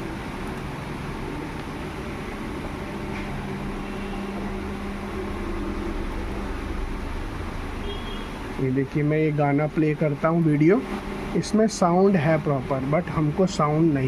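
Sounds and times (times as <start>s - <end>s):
low steady drone: 0.0s - 8.0s
steady mechanical hum: 0.0s - 14.0s.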